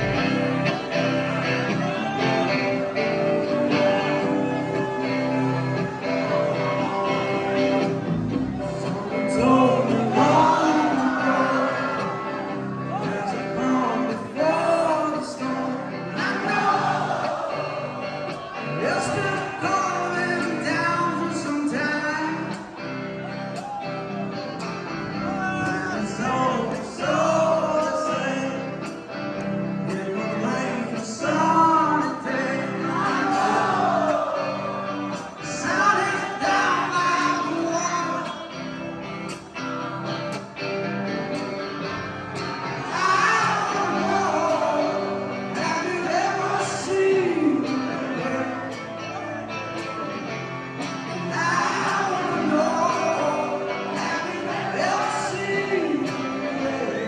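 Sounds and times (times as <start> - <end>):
strummed guitar: 0.0 - 57.0
man singing: 8.7 - 22.8, 24.9 - 39.9, 42.6 - 57.0.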